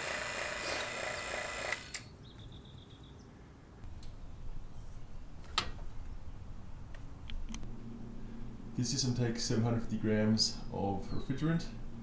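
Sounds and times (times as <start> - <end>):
vacuum pump running: 0.0 - 2.0.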